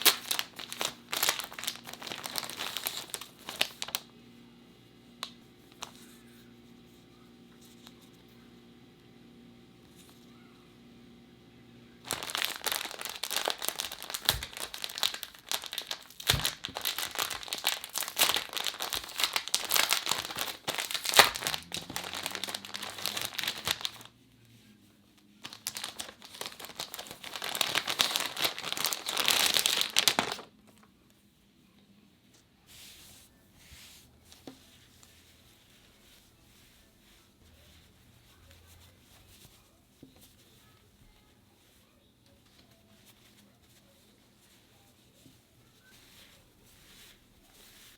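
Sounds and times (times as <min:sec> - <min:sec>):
packaging crinkling: 0:00.0 - 0:04.1, 0:12.0 - 0:24.1, 0:25.4 - 0:30.9.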